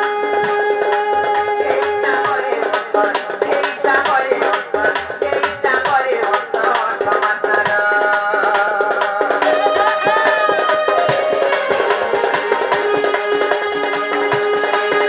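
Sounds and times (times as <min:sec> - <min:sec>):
fast hand-drum strokes: 0:00.0 - 0:15.0
wavering melody line: 0:09.4 - 0:15.0.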